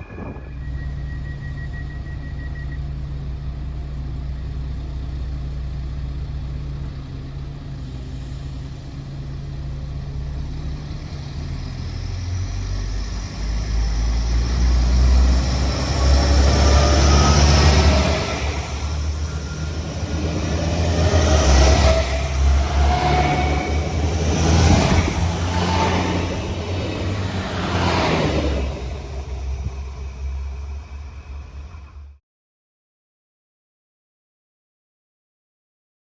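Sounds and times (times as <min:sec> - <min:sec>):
engine whine rising: 0:00.0 - 0:04.6, 0:09.9 - 0:32.2
diesel train engine idling: 0:00.0 - 0:32.2.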